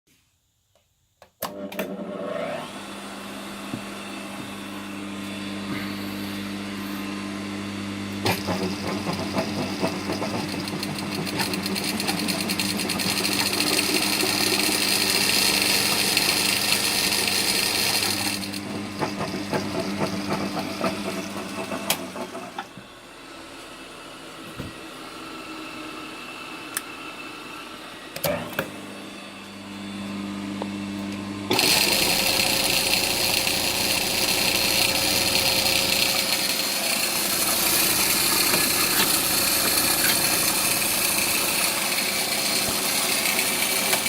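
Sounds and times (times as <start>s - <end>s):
sewing machine motor humming: 8.2s - 22.7s, 31.5s - 44.0s
sewing machine stitching clatter: 8.3s - 21.0s.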